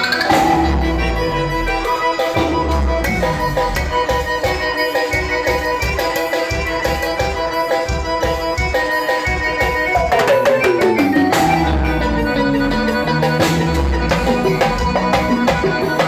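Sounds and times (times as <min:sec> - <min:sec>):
instrument sliding down in pitch: 0:00.0 - 0:04.8, 0:09.9 - 0:15.8
drum kit beat: 0:00.0 - 0:16.0
guitar: 0:00.0 - 0:16.0
keyboard chords: 0:00.0 - 0:16.0.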